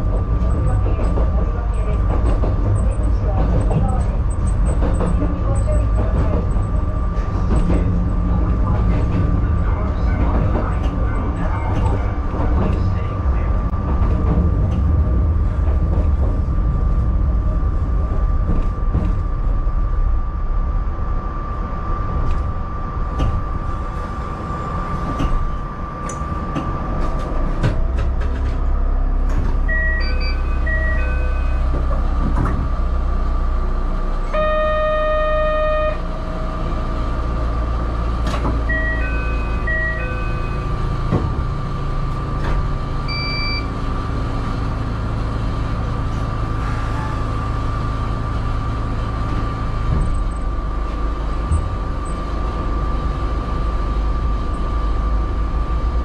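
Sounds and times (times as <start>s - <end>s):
electric train running rumble: 0.0s - 56.0s
train standing hum: 0.0s - 56.0s
buzzer tone: 29.7s - 31.6s, 34.3s - 36.1s, 38.7s - 40.7s.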